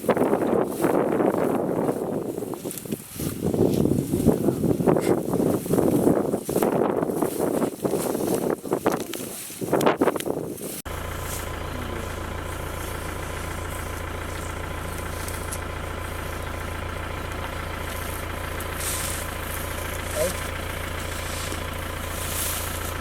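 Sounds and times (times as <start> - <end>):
jeep engine idling: 10.9 - 23.0.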